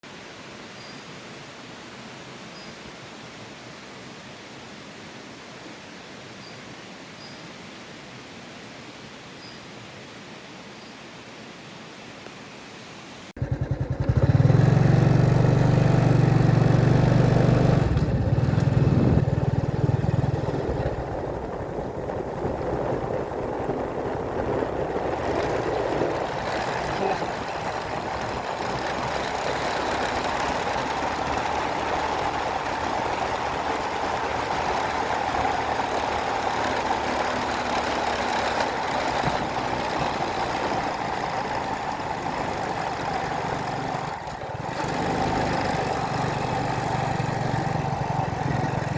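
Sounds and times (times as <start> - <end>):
vehicle engine running: 13.4 - 48.9.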